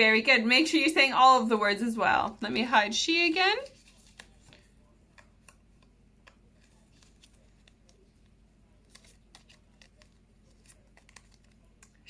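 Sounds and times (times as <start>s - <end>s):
paper cards shuffled: 3.6s - 12.0s.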